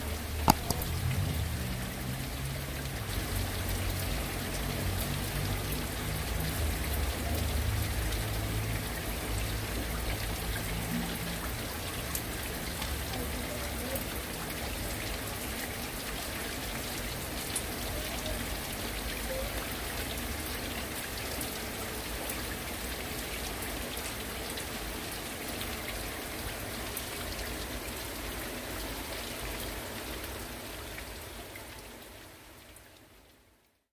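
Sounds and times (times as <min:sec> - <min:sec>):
heavy rain falling: 0:00.0 - 0:33.4
sharp drop taps: 0:00.4 - 0:00.9.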